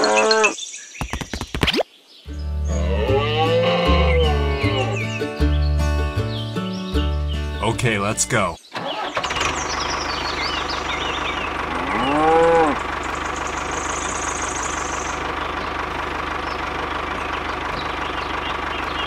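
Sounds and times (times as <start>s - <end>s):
cow mooing: 2.7s - 5.0s, 11.6s - 12.9s
tractor engine chugging: 8.9s - 11.8s, 12.8s - 19.0s.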